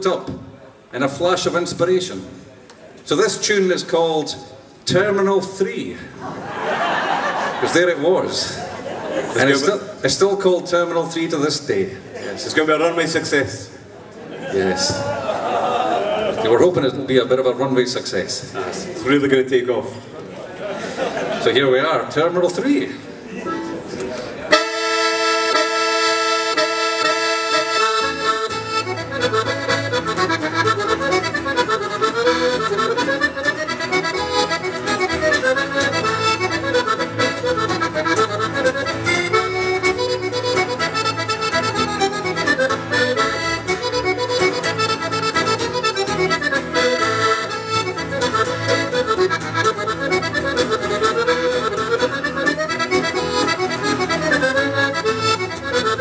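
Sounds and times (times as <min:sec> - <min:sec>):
accordion playing a tune: 0:23.4 - 0:56.0.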